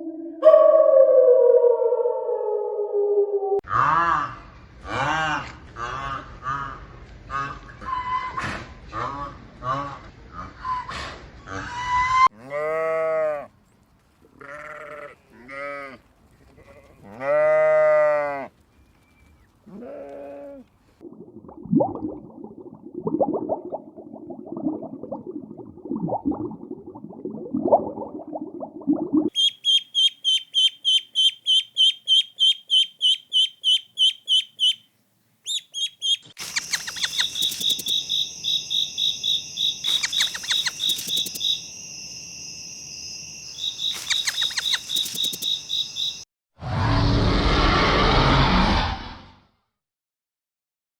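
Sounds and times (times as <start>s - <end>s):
sheep bleating: 14.4s - 18.4s
fast high-pitched chirping: 29.4s - 34.8s, 35.5s - 41.7s, 43.5s - 46.2s.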